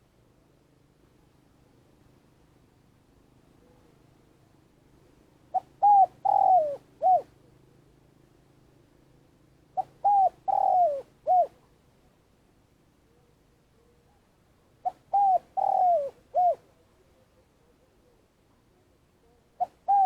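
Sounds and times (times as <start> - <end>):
dove cooing: 5.5 - 7.8, 9.7 - 11.7, 14.8 - 18.2, 19.2 - 20.0.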